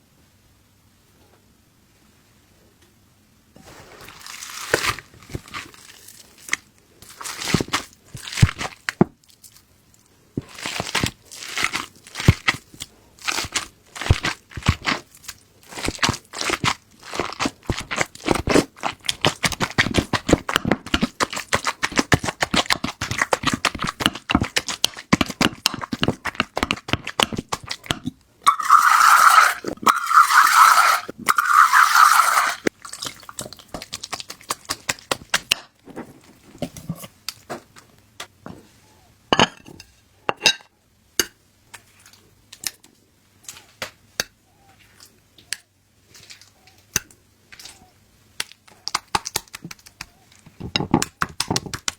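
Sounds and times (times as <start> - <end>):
utensils scraping a dish: 28.5 - 32.7.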